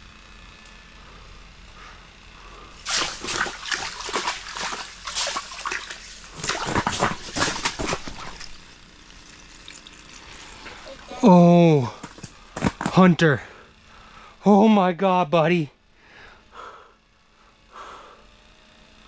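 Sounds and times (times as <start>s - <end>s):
fish thrashing in water: 2.8s - 11.0s.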